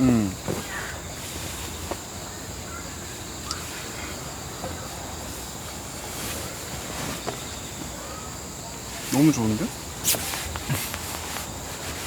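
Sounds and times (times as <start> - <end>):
insects chirring: 0.0 - 12.0
faint clicks and chirps: 3.4 - 4.1.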